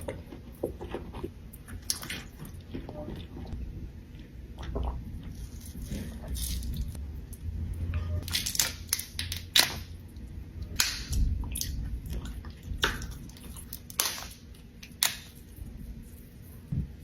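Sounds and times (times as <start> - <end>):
low steady rumble: 0.0 - 13.8
wet cracks and smacks of eating: 1.8 - 2.6, 8.2 - 15.6.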